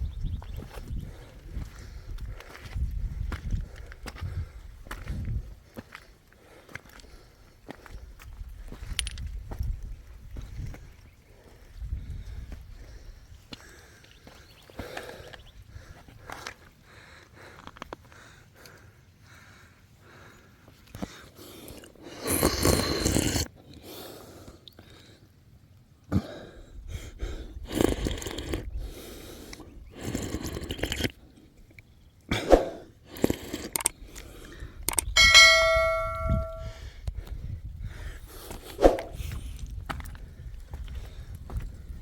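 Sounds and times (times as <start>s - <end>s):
bell-like ring: 35.2s - 36.8s.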